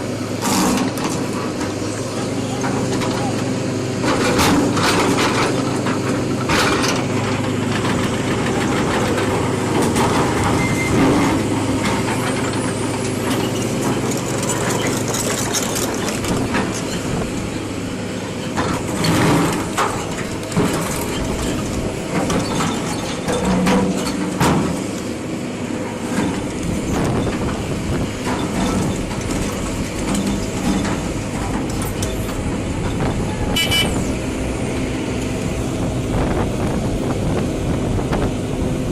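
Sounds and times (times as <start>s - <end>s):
diesel engine running: 0.0s - 38.9s
knocks and clanks: 4.0s - 17.3s, 18.4s - 25.0s, 26.1s - 34.2s.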